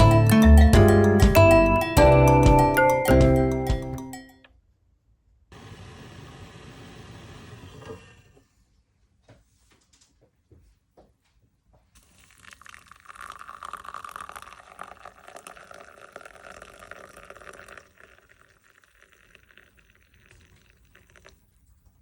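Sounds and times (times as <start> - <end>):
liquid pouring into a container: 12.0 - 22.0.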